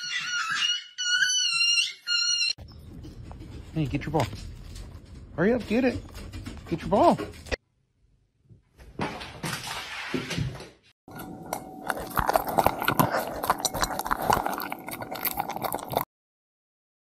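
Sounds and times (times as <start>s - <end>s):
dog chewing and crunching: 11.1s - 16.1s.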